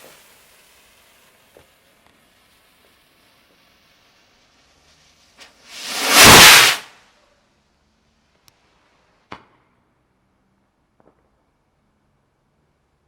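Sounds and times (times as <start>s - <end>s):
firework fuse fizzing: 0.0s - 6.9s
firework rocket whoosh: 2.4s - 6.9s
firework sharp crack: 5.7s - 6.9s.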